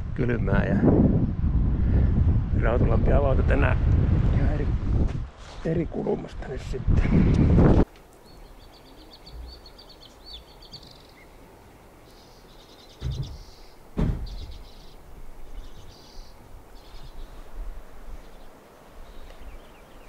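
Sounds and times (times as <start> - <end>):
dull low thumps: 0.0 - 5.4, 13.0 - 14.6
songbird singing high trills: 8.2 - 11.4, 12.0 - 17.4, 18.2 - 20.0.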